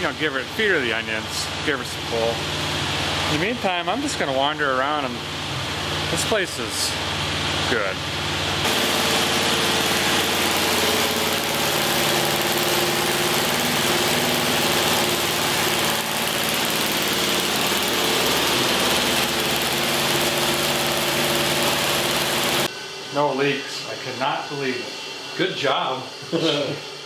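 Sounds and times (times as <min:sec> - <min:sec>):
car engine running steadily: 0:08.2 - 0:22.7.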